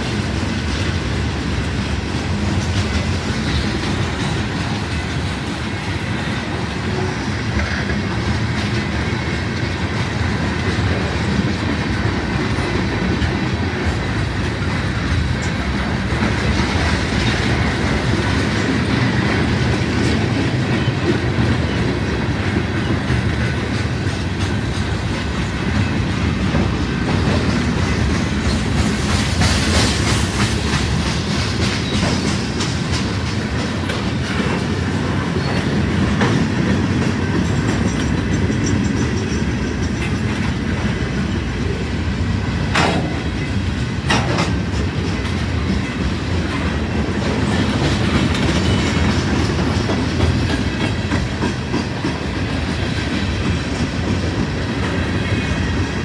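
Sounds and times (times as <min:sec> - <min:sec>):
freight train rumble and clatter: 0:00.0 - 0:56.0.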